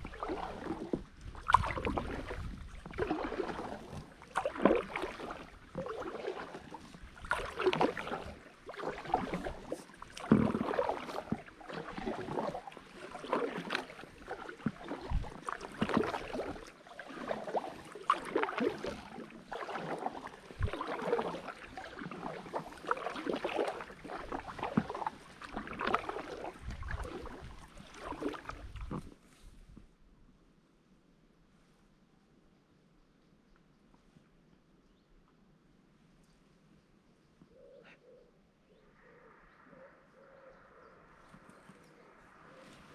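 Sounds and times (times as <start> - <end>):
paddle strokes splashing water: 0.0 - 29.8, 40.1 - 42.9.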